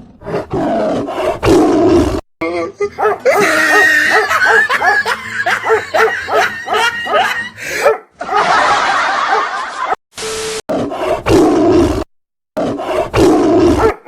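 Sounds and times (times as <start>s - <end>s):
person laughing: 3.0s - 10.0s.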